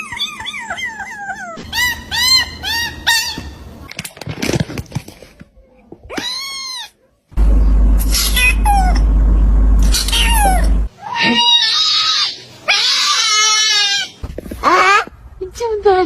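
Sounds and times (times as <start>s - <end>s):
loud low rumble: 7.4s - 10.9s.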